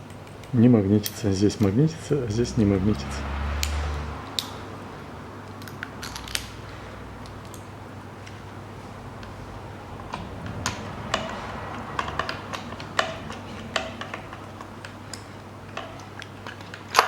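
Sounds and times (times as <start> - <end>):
metal parts clicking and tapping: 3.6 - 4.6, 7.2 - 8.4, 10.1 - 17.0.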